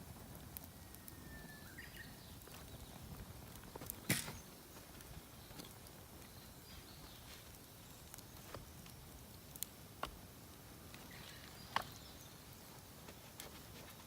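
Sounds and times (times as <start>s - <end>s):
campfire crackling faintly: 0.0s - 14.0s
sharp pop of fire: 4.0s - 4.4s.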